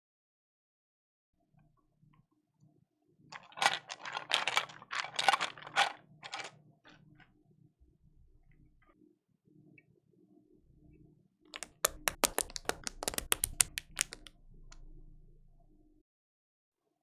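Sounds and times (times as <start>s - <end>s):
mechanical keyboard typing: 11.6s - 14.3s.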